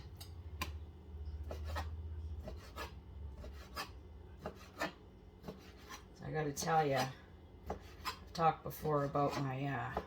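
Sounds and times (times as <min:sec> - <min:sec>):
knife slicing chicken on board: 0:01.4 - 0:06.1, 0:07.0 - 0:08.3.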